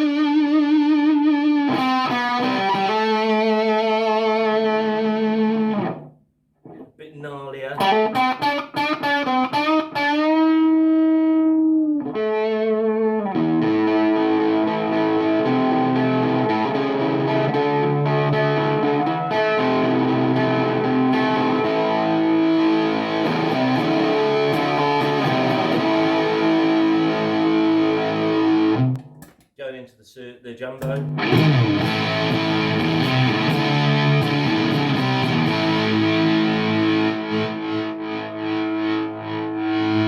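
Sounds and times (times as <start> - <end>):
distorted electric guitar: 0.0 - 6.9, 7.7 - 29.2, 30.8 - 40.0.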